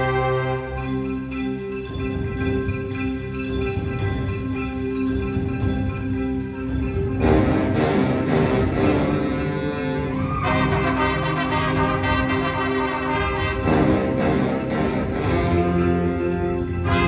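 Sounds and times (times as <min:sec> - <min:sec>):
wind band playing held chords: 0:00.0 - 0:02.8, 0:06.9 - 0:17.0.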